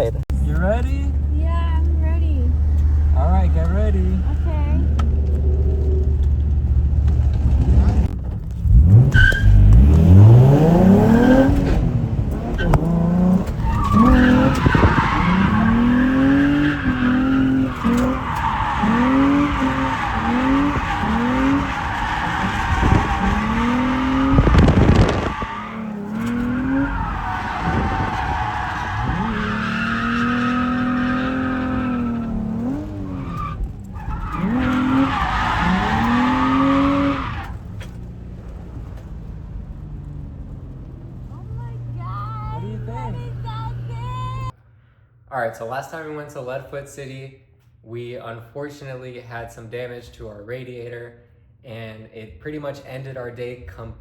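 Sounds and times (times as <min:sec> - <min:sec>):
car engine revving: 0:00.0 - 0:44.5
tyres squealing: 0:08.8 - 0:39.3.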